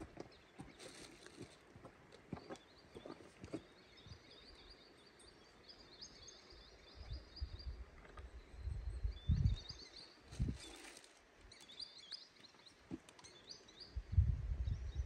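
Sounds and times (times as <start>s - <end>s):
songbird chirping: 0.0s - 15.0s.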